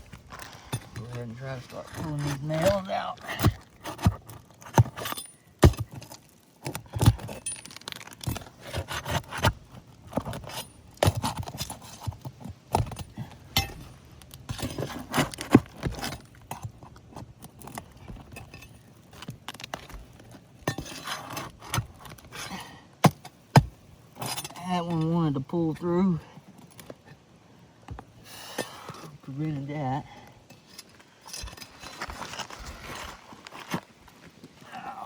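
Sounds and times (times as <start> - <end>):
metal tool scraping roof shingles: 0.5 - 16.8, 17.6 - 25.1, 30.5 - 33.8.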